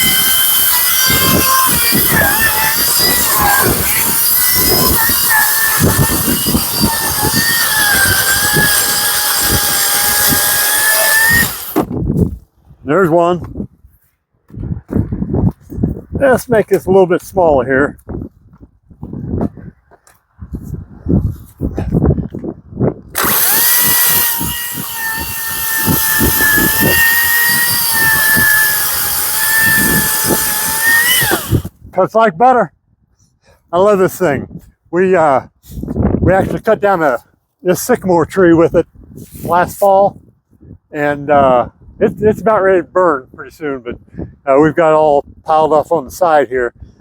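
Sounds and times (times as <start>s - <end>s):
chain rasping through wood: 0.0s - 11.9s, 23.2s - 31.7s
electric chainsaw motor whining: 0.0s - 12.0s, 23.2s - 31.7s.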